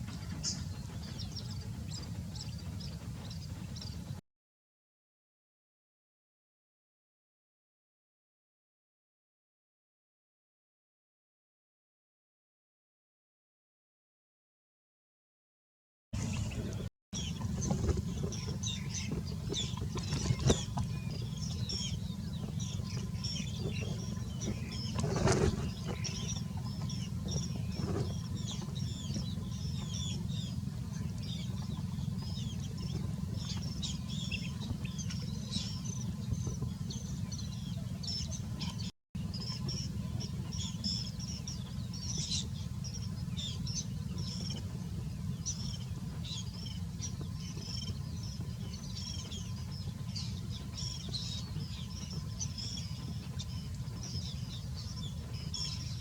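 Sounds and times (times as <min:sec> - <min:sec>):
small birds chirping: 0:00.0 - 0:04.2, 0:16.2 - 0:56.0
steady low rumble: 0:00.0 - 0:04.2, 0:16.2 - 0:56.0.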